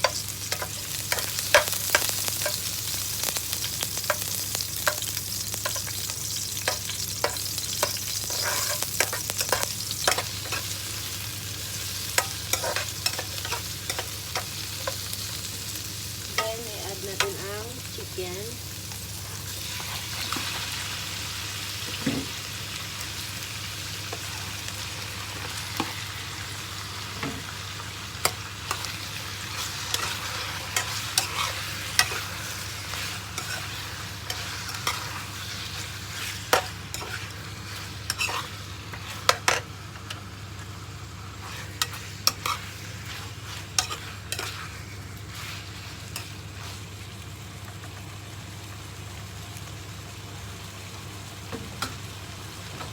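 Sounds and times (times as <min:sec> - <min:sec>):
spatula scraping a pan: 0:00.0 - 0:02.7, 0:03.3 - 0:11.1, 0:11.7 - 0:15.1, 0:28.2 - 0:39.7, 0:41.3 - 0:46.8
chicken sizzling in hot oil: 0:00.0 - 0:52.9.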